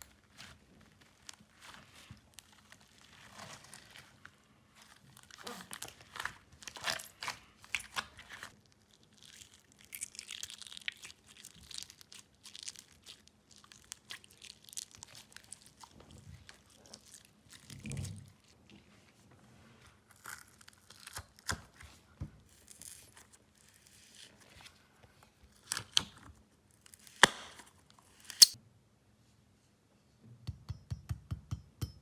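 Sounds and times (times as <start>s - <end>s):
slime crackling and popping: 4.8s - 18.5s.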